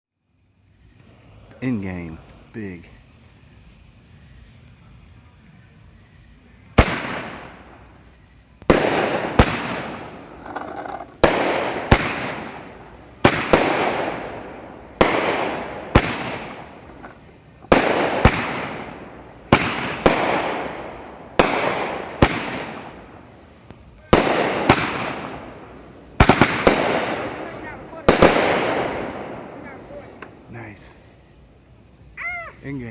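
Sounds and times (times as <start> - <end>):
firework bangs: 0.9 - 32.9.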